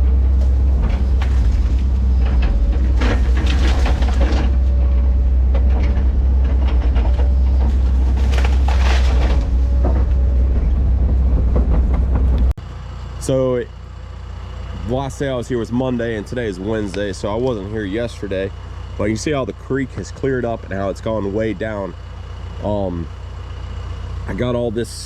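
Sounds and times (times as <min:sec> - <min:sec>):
track clanking: 0:00.0 - 0:12.6, 0:14.5 - 0:24.6
diesel engine running under load: 0:00.0 - 0:25.0
brush and wood crackling: 0:00.3 - 0:04.9, 0:06.3 - 0:10.4.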